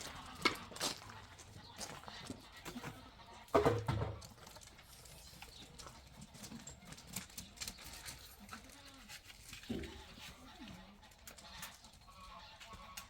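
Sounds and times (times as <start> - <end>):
farm animal call: 0.0 - 4.3, 7.8 - 13.0.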